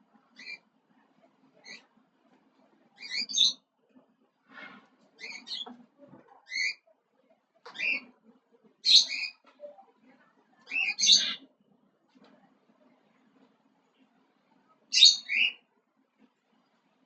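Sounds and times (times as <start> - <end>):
faint low hum: 0.0 - 17.0
small animal chirping: 0.4 - 0.6.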